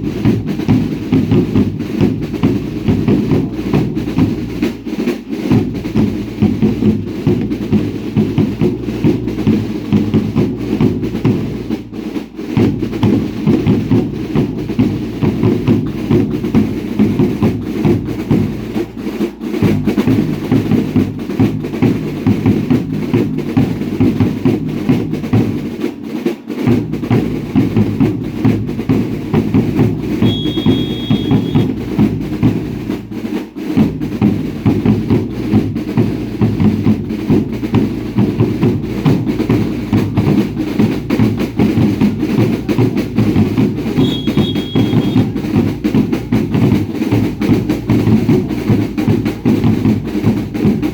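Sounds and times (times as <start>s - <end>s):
drums beating steady rhythm: 0.0s - 50.9s
brief high tone: 30.2s - 31.7s, 44.0s - 45.4s.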